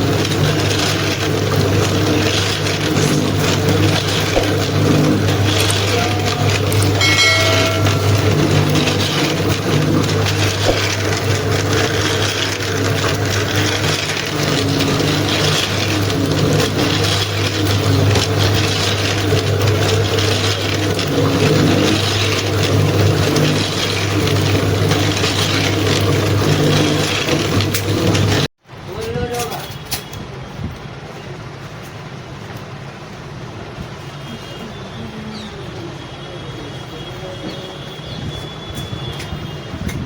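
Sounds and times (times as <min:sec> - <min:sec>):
low machine hum: 0:00.0 - 0:28.4
rattling: 0:00.0 - 0:28.5.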